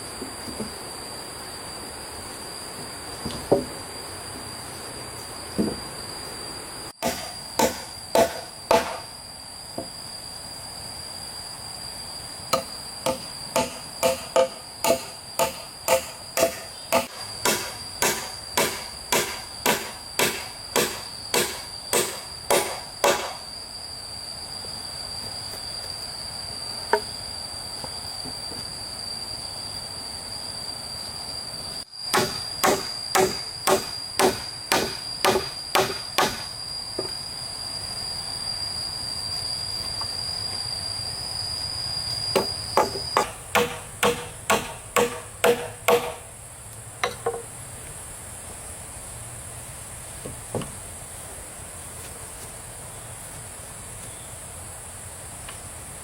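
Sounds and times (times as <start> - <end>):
insects chirring: 0.0 - 56.0
hand tool striking hard: 7.0 - 9.1, 12.6 - 23.4, 32.1 - 36.5, 42.4 - 46.3.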